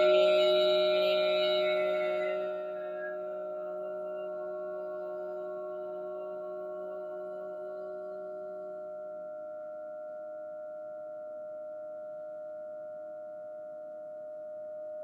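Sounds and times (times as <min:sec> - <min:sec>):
ringing tones drone: 0:00.0 - 0:09.1.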